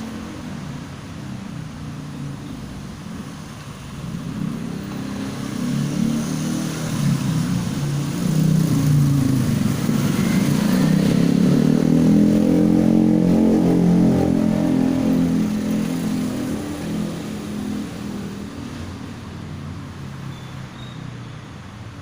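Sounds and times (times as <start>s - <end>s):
motorcycle engine revving: 4.1s - 19.0s.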